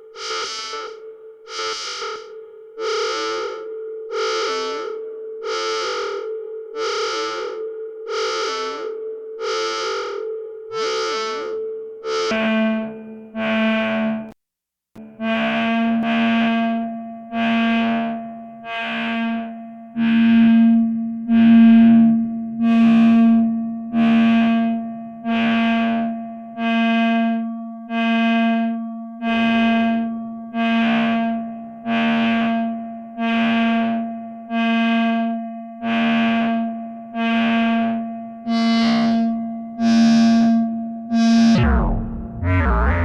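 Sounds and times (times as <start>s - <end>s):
synthesizer note repeating: 41.4s - 43.0s.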